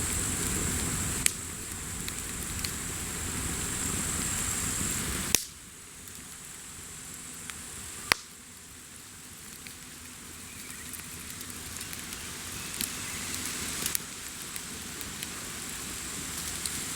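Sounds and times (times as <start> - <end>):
bonfire crackling: 0.0 - 16.9
sharp pops of fire: 0.0 - 16.9.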